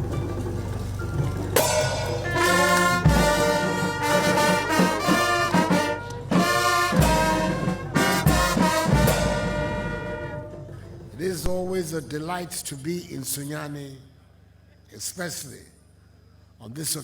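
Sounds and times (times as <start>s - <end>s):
brass band music: 0.0s - 12.0s
heavy low drum beats: 0.0s - 12.5s.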